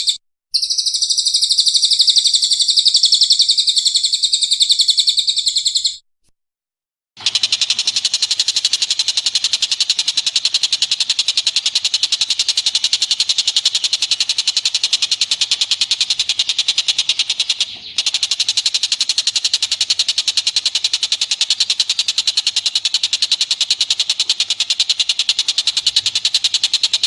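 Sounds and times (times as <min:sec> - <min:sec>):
animal chattering call: 0:00.0 - 0:06.0, 0:07.2 - 0:27.0.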